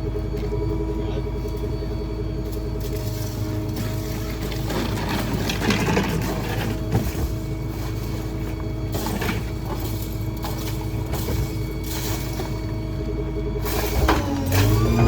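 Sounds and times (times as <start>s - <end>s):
garbage truck humming: 0.0s - 15.0s
debris clattering: 3.7s - 13.0s, 13.6s - 15.0s.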